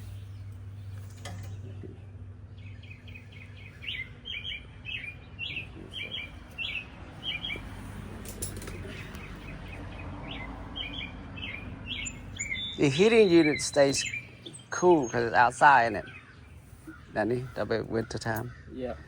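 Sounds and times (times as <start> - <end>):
small songbird chirping: 0.0 - 19.0.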